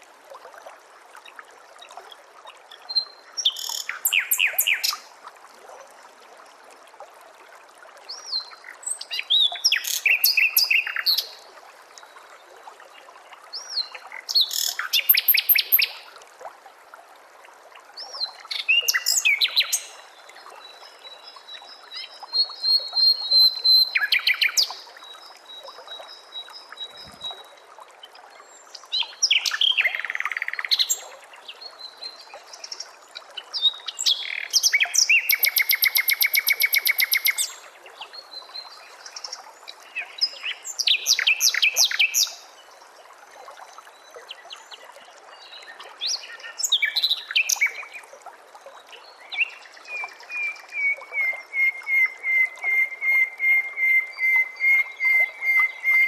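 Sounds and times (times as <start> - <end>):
songbird whistles and chirps: 34.0 - 37.6, 49.4 - 56.0.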